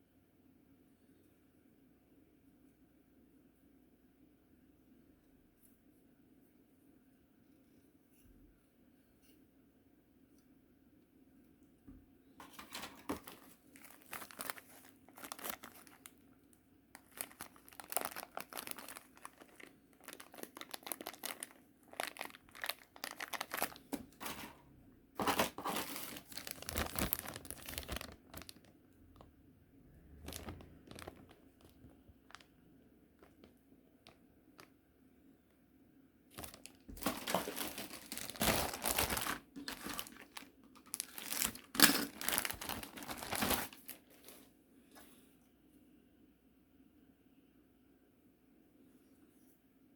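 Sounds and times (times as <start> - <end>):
plastic packaging crinkling: 12.4 - 29.4, 30.1 - 34.8, 36.3 - 44.5.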